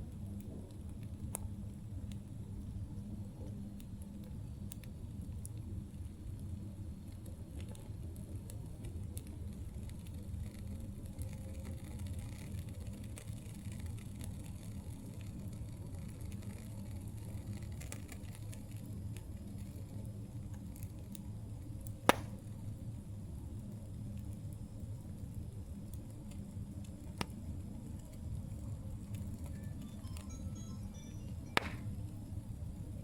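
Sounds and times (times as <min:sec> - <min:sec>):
campfire crackling: 0:00.0 - 0:33.0
loud sharp fire pop: 0:22.0 - 0:22.4, 0:31.6 - 0:31.9.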